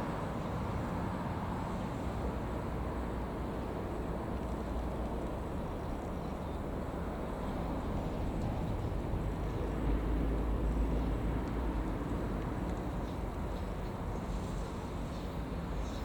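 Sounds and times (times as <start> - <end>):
train low rumble: 0.0 - 16.0.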